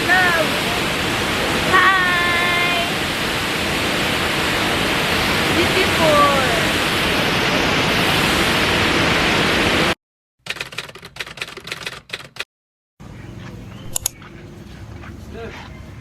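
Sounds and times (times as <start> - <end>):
waterfall rushing: 0.0 - 10.0
rapid clicking and crackling: 10.5 - 12.5
outdoor ambience: 13.0 - 16.0.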